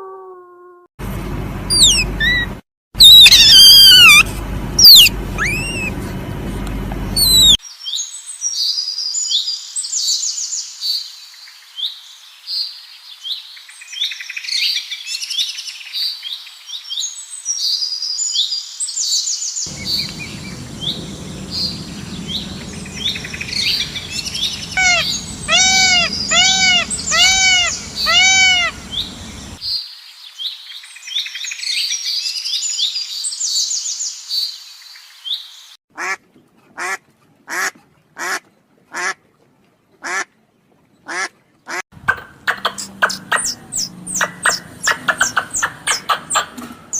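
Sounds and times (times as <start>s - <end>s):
birds chirping and trilling: 1.7s - 4.2s, 4.8s - 6.0s, 19.5s - 35.7s, 42.0s - 46.9s
loud arching bird calls: 1.7s - 5.9s, 19.7s - 29.6s, 41.1s - 46.6s.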